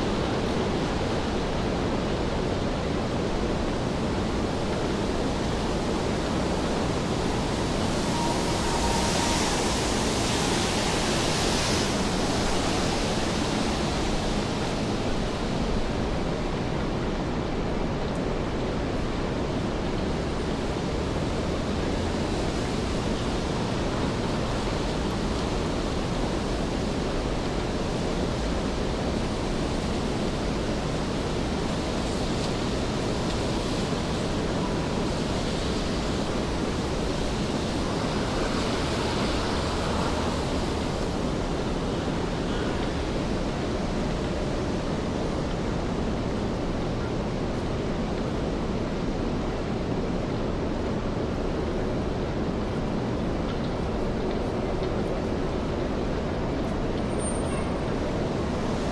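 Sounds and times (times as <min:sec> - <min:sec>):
rain on wet pavement: 0:21.6 - 0:43.0.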